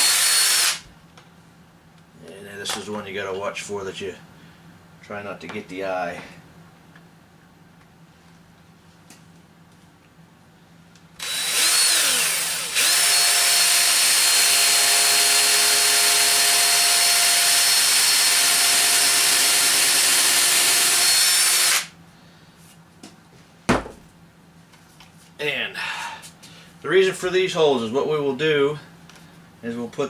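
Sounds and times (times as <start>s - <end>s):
power drill boring into plastic: 0.0s - 0.8s, 11.2s - 21.9s.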